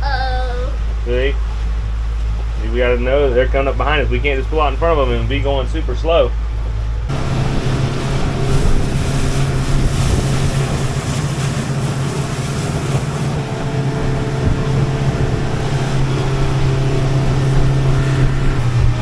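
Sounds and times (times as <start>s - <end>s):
outboard motor running: 0.0s - 19.0s
water rushing past hull: 0.0s - 19.0s
wind: 0.0s - 19.0s.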